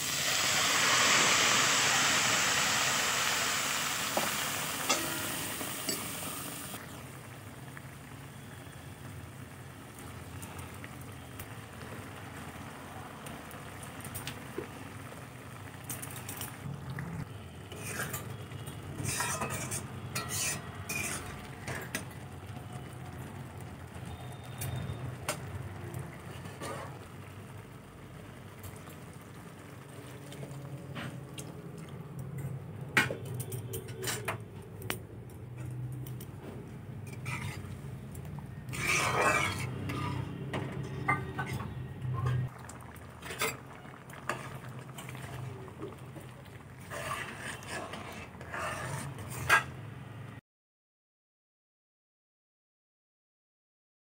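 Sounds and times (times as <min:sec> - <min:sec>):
spoon working in pan: 0:00.0 - 0:06.9, 0:17.7 - 0:22.2, 0:26.2 - 0:27.3, 0:37.0 - 0:49.8
food sizzling in a wok: 0:00.0 - 0:30.5, 0:37.0 - 0:41.7, 0:42.7 - 0:50.3.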